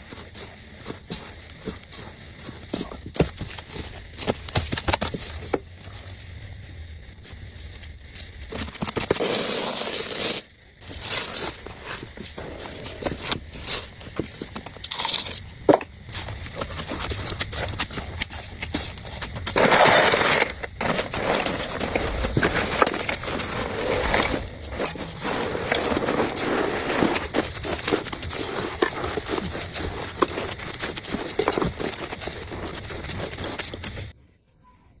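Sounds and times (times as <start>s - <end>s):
dense crackling and crinkling: 0.0s - 34.2s
loud rustling burst: 16.1s - 34.1s.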